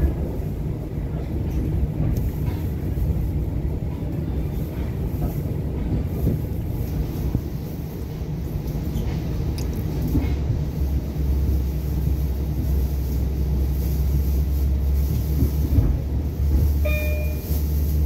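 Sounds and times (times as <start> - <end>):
train rumble from on board: 0.0 - 18.0.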